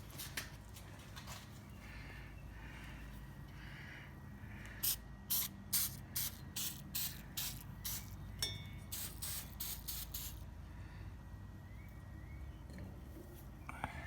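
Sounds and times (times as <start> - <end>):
spray bottle squirting: 4.8 - 8.2, 8.9 - 10.4.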